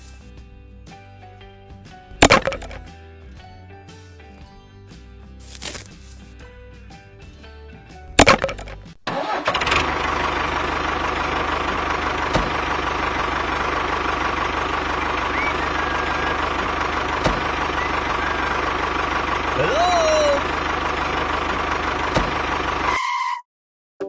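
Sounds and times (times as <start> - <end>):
small engine running: 9.1 - 22.9.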